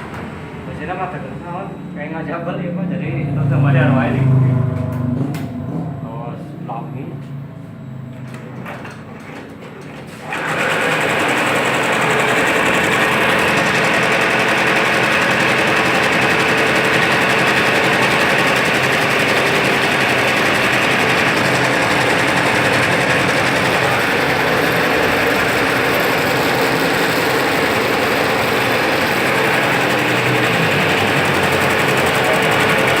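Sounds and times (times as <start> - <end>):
embroidery machine stitching: 8.6 - 33.0.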